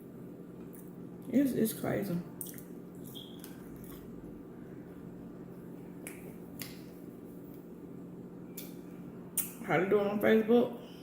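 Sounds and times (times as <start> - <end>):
low electrical hum: 0.0 - 11.0
mouth clicks and smacks eating: 2.4 - 4.1, 6.0 - 6.9, 9.4 - 9.6.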